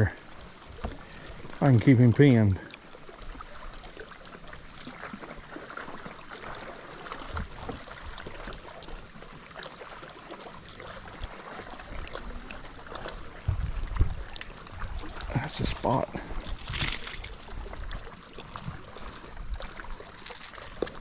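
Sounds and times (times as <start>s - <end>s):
water patter and trickle: 0.0s - 21.0s
soft low thumps: 13.4s - 15.1s.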